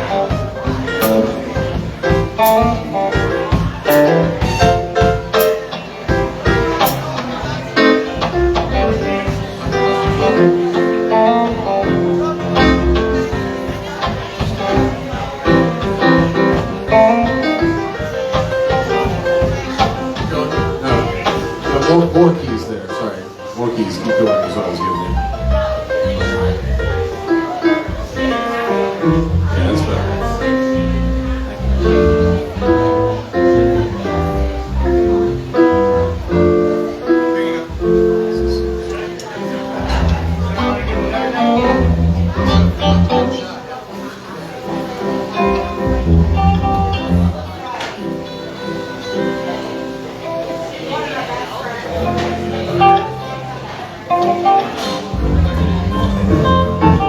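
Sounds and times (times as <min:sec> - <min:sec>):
steady drum beat: 0:00.0 - 0:22.3, 0:24.9 - 0:37.0, 0:39.6 - 0:43.4, 0:45.4 - 0:47.5, 0:55.0 - 0:57.0
guitar: 0:00.0 - 0:57.0
bass line: 0:11.5 - 0:13.8, 0:25.0 - 0:27.3, 0:27.9 - 0:37.0, 0:39.8 - 0:43.4, 0:45.4 - 0:47.6, 0:55.1 - 0:57.0.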